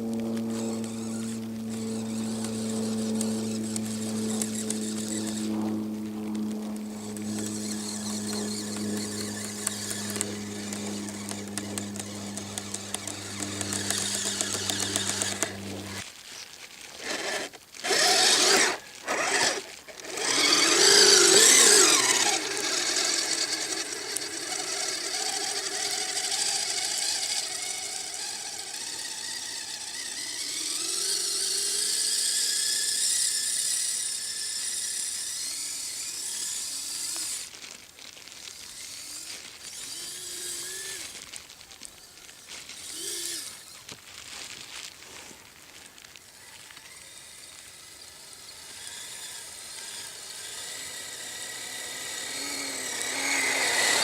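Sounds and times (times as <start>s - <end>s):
steady low hum: 0.0s - 16.0s
electric motors whining: 0.0s - 37.8s, 38.4s - 44.0s, 46.0s - 54.0s.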